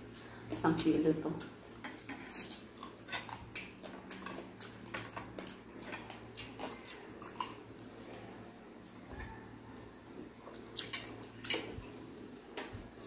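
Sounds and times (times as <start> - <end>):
steady low hum: 0.0 - 13.0
chewing clicks and lip smacks: 1.4 - 7.6, 10.7 - 11.7.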